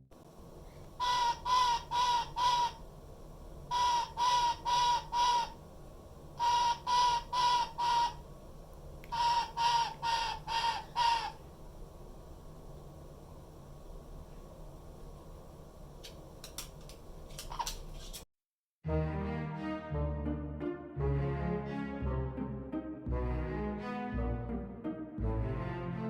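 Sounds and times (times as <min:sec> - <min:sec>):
parrot screeching calls: 0:01.0 - 0:02.8, 0:03.7 - 0:05.6, 0:06.4 - 0:08.2, 0:09.1 - 0:11.4.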